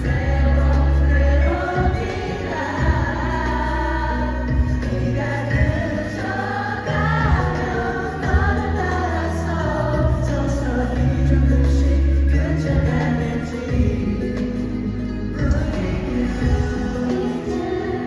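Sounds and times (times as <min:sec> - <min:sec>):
heavy bass notes: 0:00.0 - 0:18.0
male voices singing a ballad: 0:00.0 - 0:18.0.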